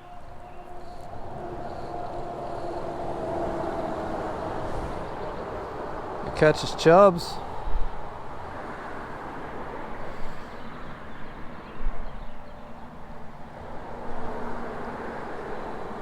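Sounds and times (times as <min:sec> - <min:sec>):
stream flowing: 0:00.0 - 0:10.5.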